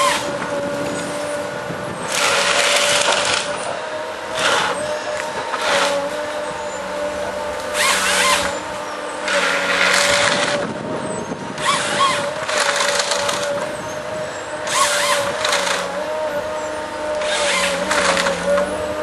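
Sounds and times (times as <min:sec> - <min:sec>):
harvester engine and hydraulics whine: 0:00.0 - 0:19.0.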